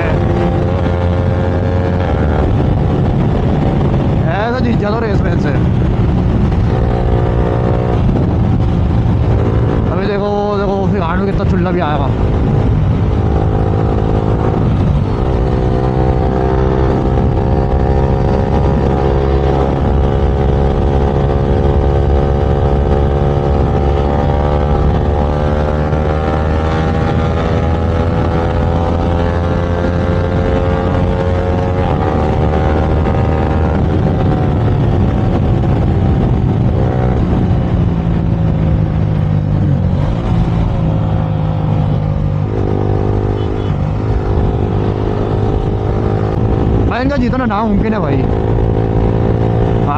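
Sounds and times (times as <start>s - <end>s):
motorcycle engine at speed: 0.0s - 49.9s.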